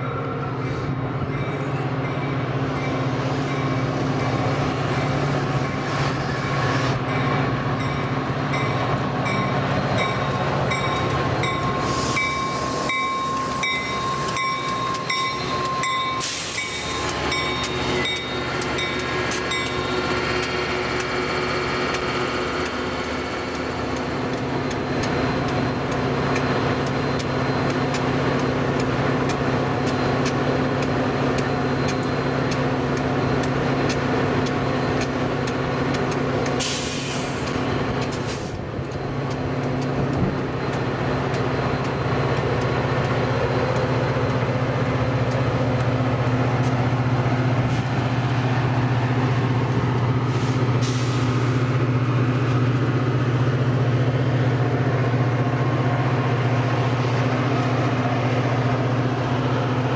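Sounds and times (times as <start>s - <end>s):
locomotive bell ringing: 0.0s - 5.8s, 6.4s - 36.5s, 38.9s - 47.5s
diesel locomotive engine running: 0.0s - 59.9s
brake squeal: 11.4s - 20.2s
air hiss: 11.8s - 12.9s, 16.2s - 17.0s, 36.6s - 37.5s, 50.3s - 51.6s.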